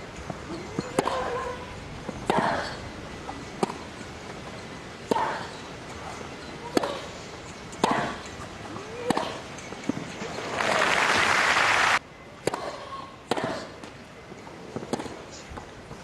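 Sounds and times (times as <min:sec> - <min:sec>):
racket hitting tennis ball: 0:00.7 - 0:01.4, 0:02.1 - 0:02.8, 0:03.5 - 0:04.0, 0:05.0 - 0:07.2, 0:07.8 - 0:10.8, 0:12.4 - 0:13.9, 0:14.6 - 0:15.2.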